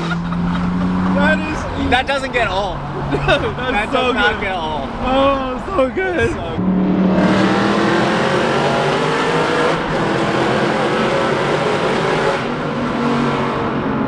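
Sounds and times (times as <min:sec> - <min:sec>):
road and wind noise: 0:00.0 - 0:14.0
loud car exhaust: 0:06.2 - 0:14.0.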